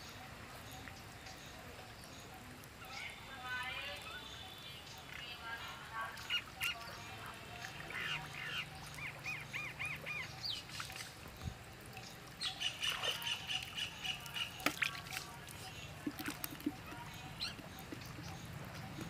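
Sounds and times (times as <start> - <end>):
bird trill with rapid clicks: 12.4 - 19.0
high bird chirps: 15.6 - 19.0.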